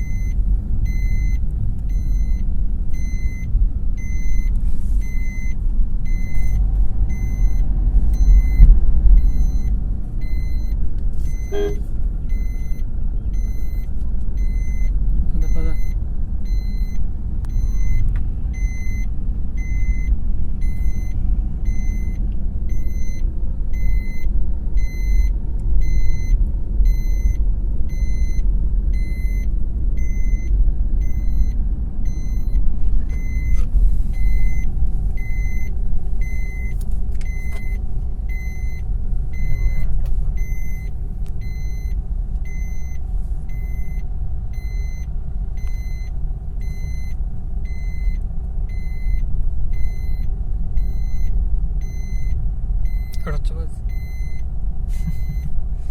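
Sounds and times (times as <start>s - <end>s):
low rumble: 0.0s - 55.9s
electronic beeper: 11.3s - 12.8s.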